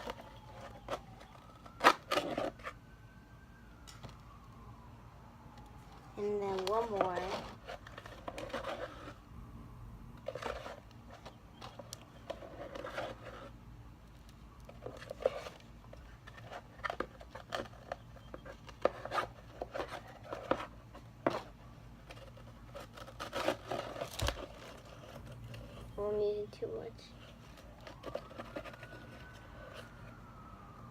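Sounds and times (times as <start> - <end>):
low steady hum: 0.0 - 30.9
containers clicking and scraping: 6.4 - 9.2, 10.2 - 13.6, 14.2 - 26.0, 27.1 - 30.2.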